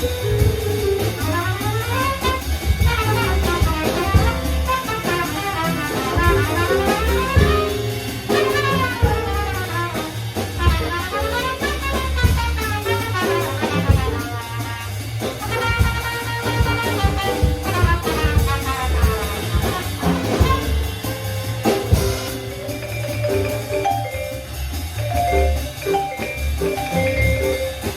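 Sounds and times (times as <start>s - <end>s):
jazz band playing swing: 0.0s - 27.9s
trumpet lead: 1.1s - 22.5s.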